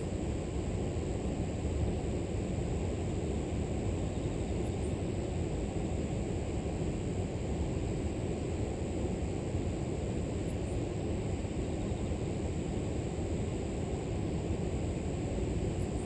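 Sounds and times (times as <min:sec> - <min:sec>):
insects droning: 0:03.7 - 0:05.4, 0:09.6 - 0:16.0.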